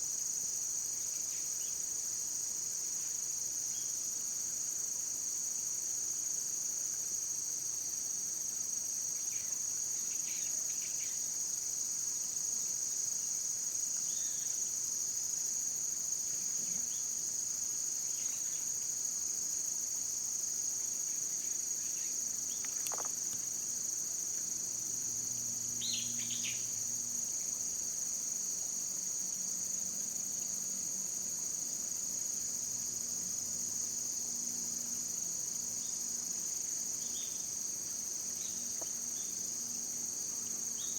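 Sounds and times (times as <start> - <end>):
insects chirring: 7.2 - 40.9.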